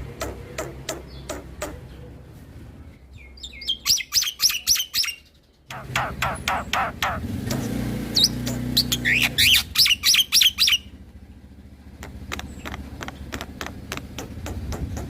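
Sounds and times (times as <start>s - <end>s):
bird singing whistled notes: 3.1s - 6.9s, 8.1s - 10.9s
bird clicking chatter: 12.0s - 15.0s.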